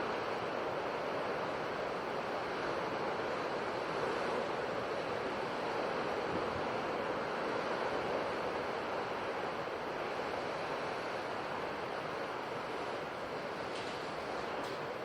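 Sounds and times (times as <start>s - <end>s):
waves washing ashore: 0.0s - 15.0s.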